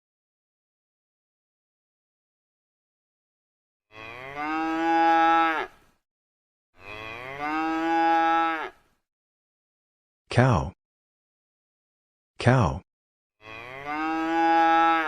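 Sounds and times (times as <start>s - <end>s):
cow mooing: 3.9s - 5.9s, 6.8s - 8.9s, 13.4s - 15.0s.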